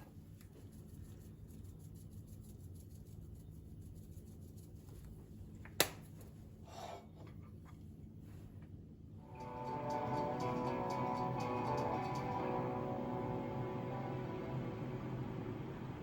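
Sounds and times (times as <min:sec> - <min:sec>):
low steady hum: 0:09.2 - 0:16.0.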